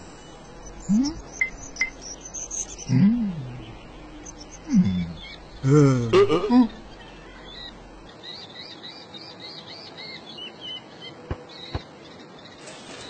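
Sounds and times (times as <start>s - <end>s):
small bird chirping: 0.0s - 5.7s, 6.7s - 9.0s.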